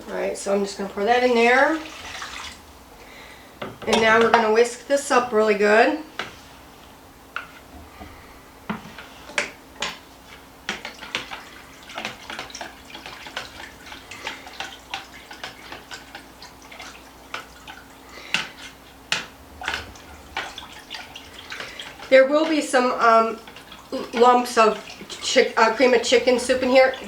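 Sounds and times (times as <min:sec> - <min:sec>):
liquid splashing: 0:00.7 - 0:03.3, 0:09.0 - 0:27.0
whisk tapping a bowl: 0:08.7 - 0:27.0.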